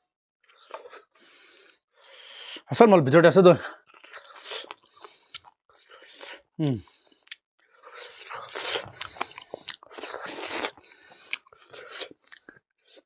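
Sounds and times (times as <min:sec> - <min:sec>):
person chewing food: 0:03.8 - 0:13.0.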